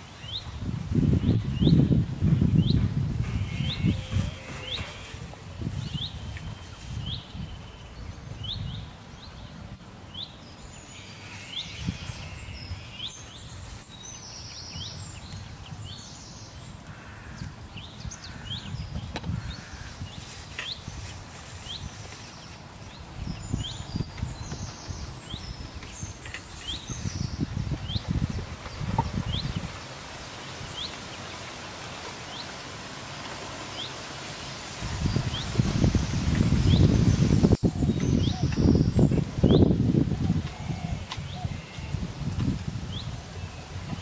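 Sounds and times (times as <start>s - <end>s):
bird chirping: 21.7s - 29.9s, 35.0s - 39.7s.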